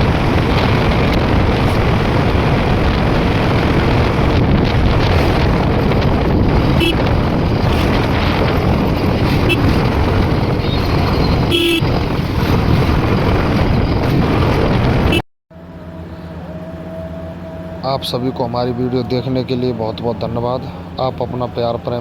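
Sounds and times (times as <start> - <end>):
wind rush: 0.0 - 15.2
motorcycle engine and road noise: 0.0 - 22.0
vehicle horn toots: 6.5 - 8.1, 9.2 - 11.9.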